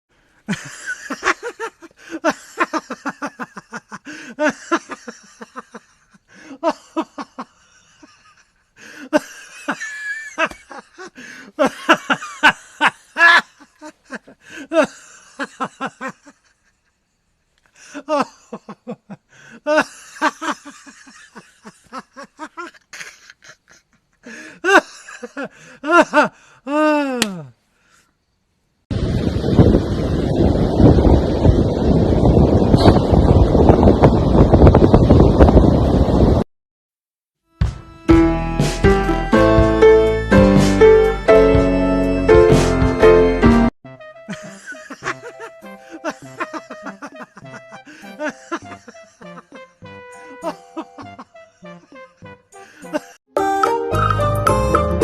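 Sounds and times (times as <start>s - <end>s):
person giggling: 0.5s - 17.0s, 17.8s - 27.5s, 44.3s - 53.2s.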